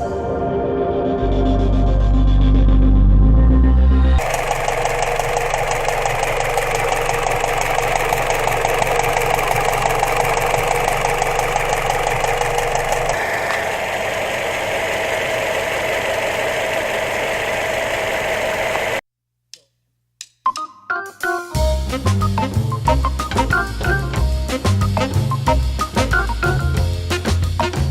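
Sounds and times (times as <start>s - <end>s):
low hum: 0.0s - 19.0s
car engine idling with knock: 4.2s - 19.0s.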